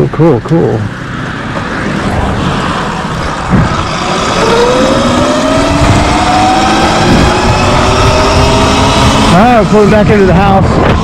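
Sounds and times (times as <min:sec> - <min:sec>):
rushing noise: 0:01.6 - 0:11.0
electric motor whining: 0:02.9 - 0:11.0.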